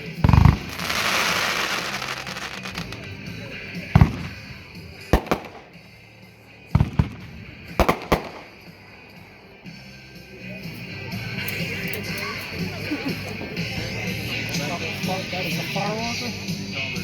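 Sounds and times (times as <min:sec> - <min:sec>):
fireworks crackling hiss: 0:00.0 - 0:05.8
fireworks bangs: 0:00.2 - 0:03.2, 0:03.9 - 0:05.9, 0:06.8 - 0:08.8.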